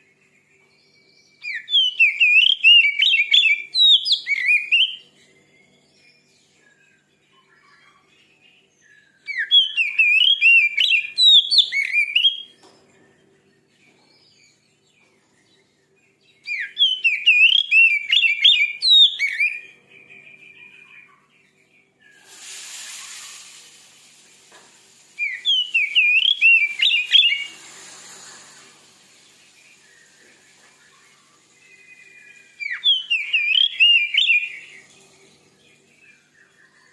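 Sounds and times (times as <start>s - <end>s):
bird singing whistled phrases: 1.3s - 5.1s, 8.8s - 12.6s, 16.4s - 21.3s, 25.2s - 27.7s, 29.4s - 34.9s
faint hiss: 22.0s - 36.4s.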